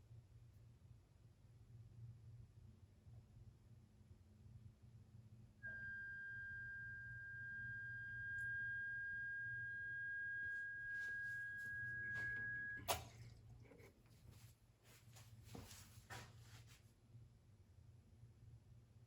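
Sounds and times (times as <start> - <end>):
espresso machine high-pitched hum: 5.6 - 13.0.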